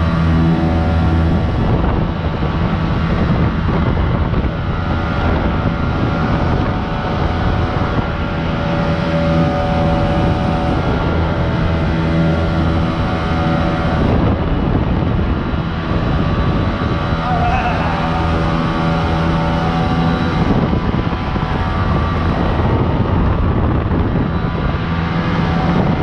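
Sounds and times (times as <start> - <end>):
jet boat engine running: 0.0 - 26.0
rushing wind: 0.0 - 26.0
water noise: 15.6 - 22.3.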